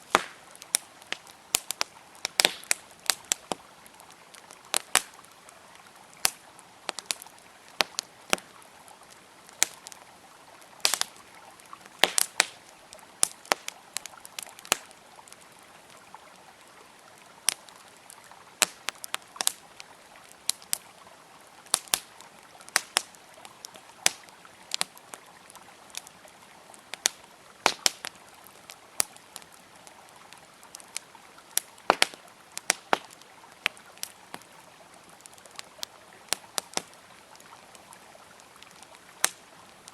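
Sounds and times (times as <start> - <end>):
river water flowing: 0.0 - 39.9
wood fire crackling: 0.0 - 39.9.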